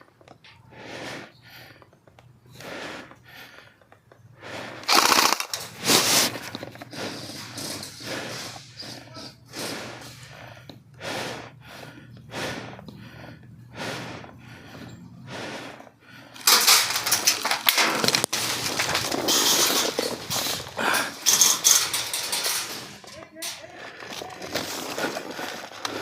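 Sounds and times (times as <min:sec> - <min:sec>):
slow breathing: 0:00.0 - 0:26.0
rustling and scraping on microphone: 0:05.6 - 0:09.9, 0:17.9 - 0:26.0.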